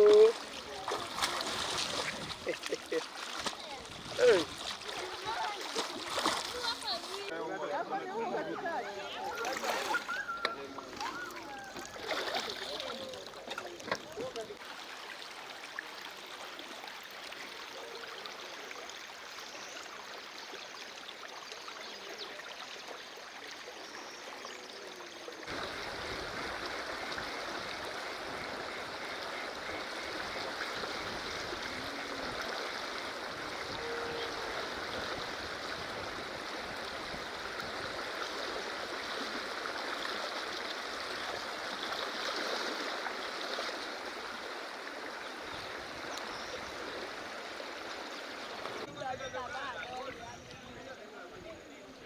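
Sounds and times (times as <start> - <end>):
river water rushing: 0.0 - 7.3, 25.4 - 48.9.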